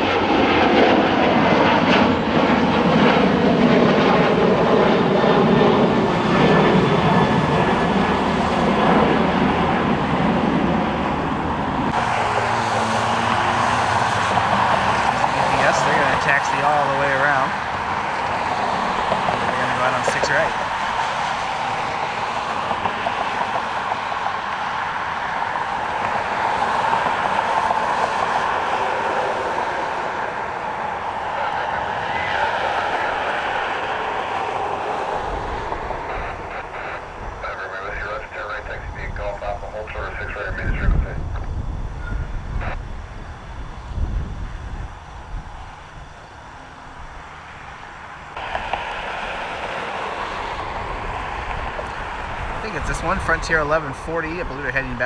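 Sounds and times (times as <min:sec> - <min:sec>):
jet engines rushing: 0:00.0 - 0:55.0
wind rumble on microphone: 0:33.9 - 0:55.0.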